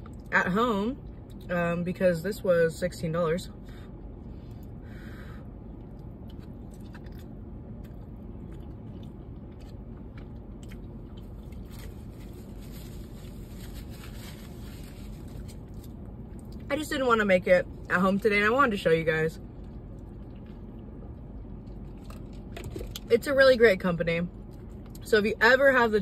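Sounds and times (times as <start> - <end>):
low background rumble: 0.0 - 26.0
chewing crunchy food: 5.8 - 13.4, 19.5 - 23.1.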